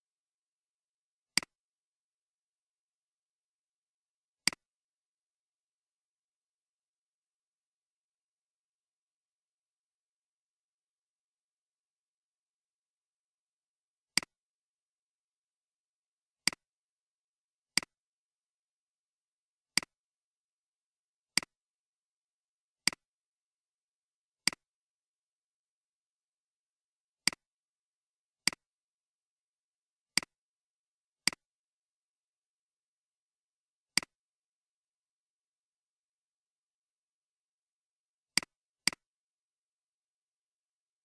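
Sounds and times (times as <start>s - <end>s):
computer mouse clicking: 38.4s - 39.0s.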